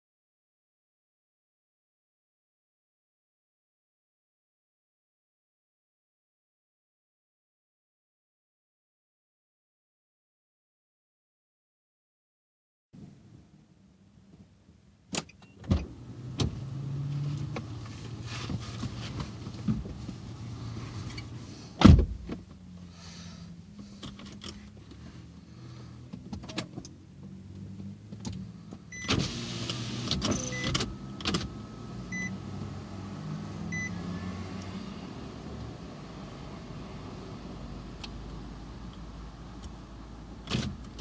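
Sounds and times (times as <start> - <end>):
car running: 15.7 - 41.0
loud thump: 21.8 - 22.4.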